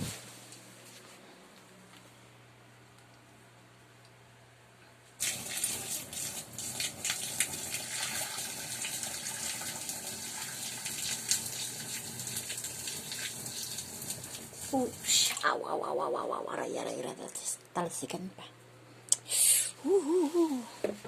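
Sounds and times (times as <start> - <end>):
boiling water splashing into drain: 5.2 - 15.4.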